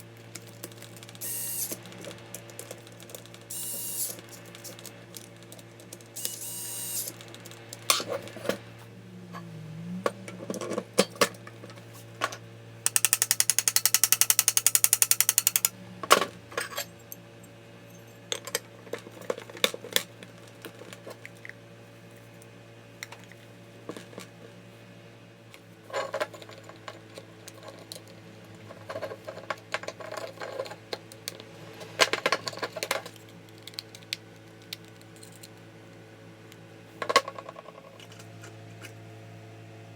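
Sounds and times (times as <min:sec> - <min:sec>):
tools and metal parts clicking: 0:00.3 - 0:08.5, 0:10.3 - 0:20.1, 0:25.9 - 0:31.4, 0:32.1 - 0:35.6
fast run of clicks: 0:12.8 - 0:15.8.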